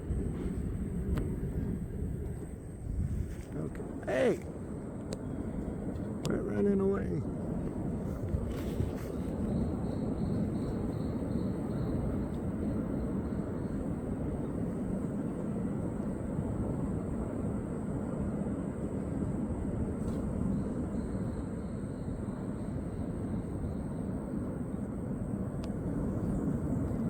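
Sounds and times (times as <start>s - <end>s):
low rumbling outdoor noise: 0.0s - 27.0s
faint high chirping pulse: 9.0s - 14.8s, 20.4s - 24.9s.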